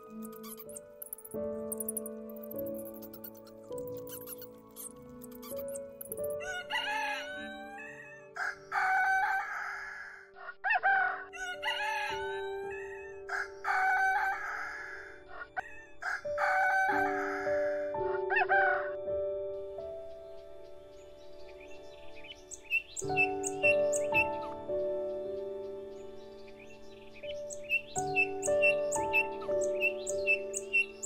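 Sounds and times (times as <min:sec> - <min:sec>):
background music: 0:00.0 - 0:31.0
rooster crowing: 0:06.4 - 0:18.9.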